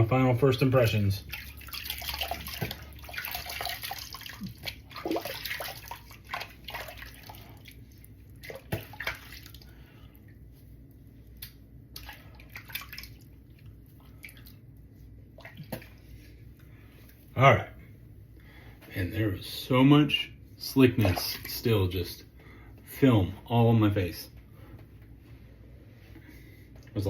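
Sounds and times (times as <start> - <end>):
water splashing into sink: 1.2 - 9.8, 11.9 - 14.6, 15.4 - 16.0.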